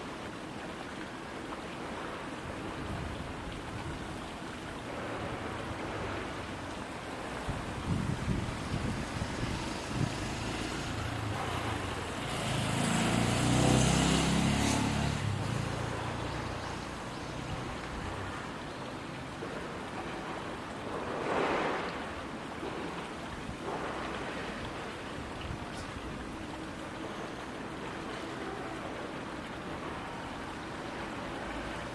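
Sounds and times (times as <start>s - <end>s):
water rushing: 0.0s - 31.9s
wind: 0.0s - 31.9s
vehicle engine hum passing: 8.5s - 18.5s.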